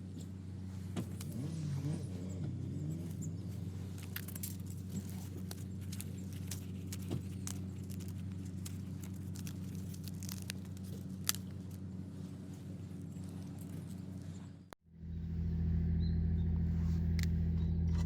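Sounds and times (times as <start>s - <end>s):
low mechanical hum: 0.0s - 18.0s
sharp clicks and crackles: 2.9s - 12.0s.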